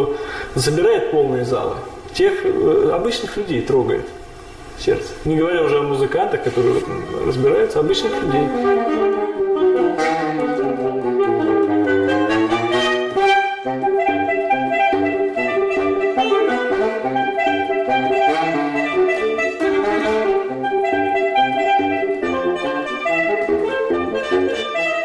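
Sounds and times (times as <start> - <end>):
saxophone melody: 6.5 - 25.0.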